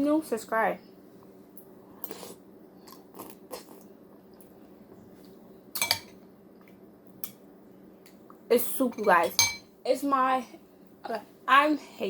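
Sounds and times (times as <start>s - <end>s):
spoon clinking against bowl: 5.8s - 6.2s, 8.9s - 9.7s.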